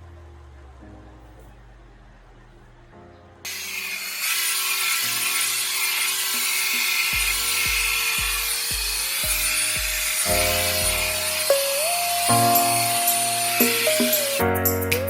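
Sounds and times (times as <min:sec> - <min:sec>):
hair dryer blowing: 0:03.5 - 0:14.5
background music with bass beat: 0:07.1 - 0:15.0.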